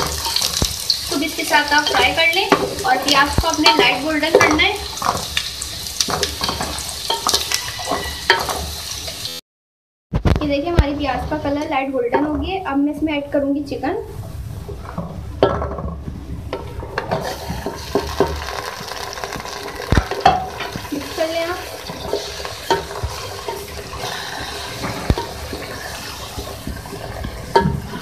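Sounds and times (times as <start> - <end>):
chicken sizzling in hot oil: 0.0 - 9.4, 16.0 - 28.0
wooden spoon knocking pot: 1.7 - 5.3, 15.0 - 20.9, 21.8 - 23.8, 26.6 - 28.0.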